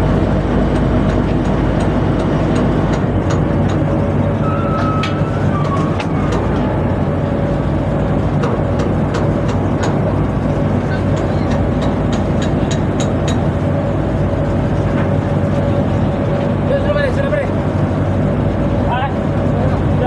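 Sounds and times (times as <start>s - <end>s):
machinery drone with whine: 0.0s - 20.0s.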